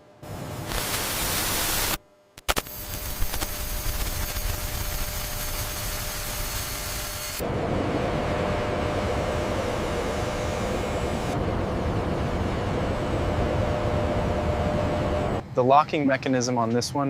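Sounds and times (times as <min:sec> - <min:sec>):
static-like rushing noise: 0:00.2 - 0:15.4
sharp clicks: 0:02.4 - 0:04.6.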